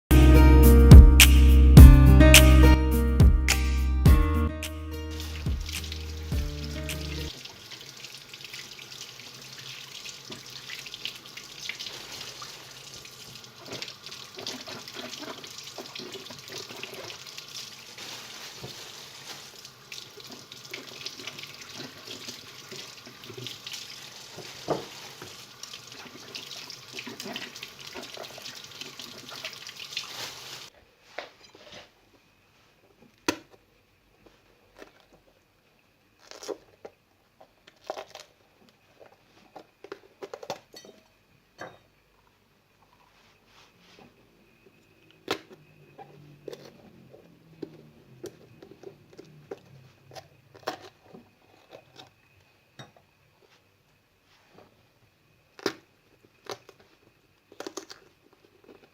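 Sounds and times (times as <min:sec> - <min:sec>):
tap water running into sink: 0:07.3 - 0:17.9, 0:19.5 - 0:30.7.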